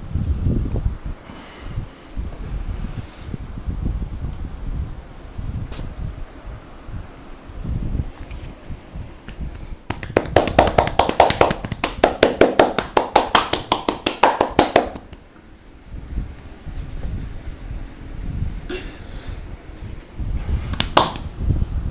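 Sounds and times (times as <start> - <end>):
hands slapping on back massage: 9.3 - 15.2, 20.7 - 21.3.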